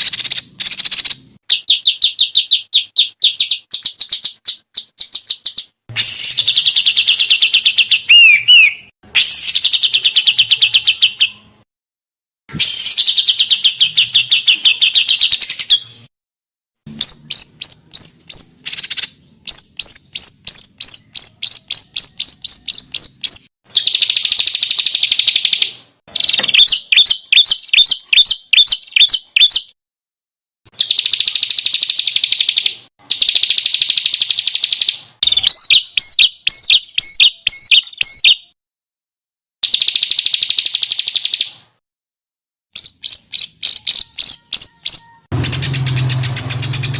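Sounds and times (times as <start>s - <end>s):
songbirds calling: 0.0s - 11.5s, 42.8s - 46.9s.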